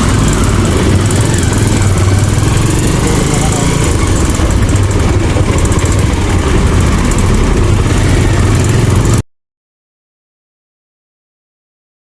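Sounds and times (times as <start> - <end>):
motorcycle engine running: 0.0 - 9.2
wind noise on microphone: 0.0 - 9.2.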